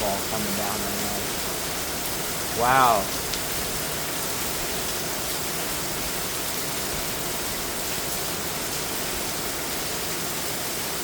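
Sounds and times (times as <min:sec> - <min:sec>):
heavy rain pouring off roof: 0:00.0 - 0:11.0.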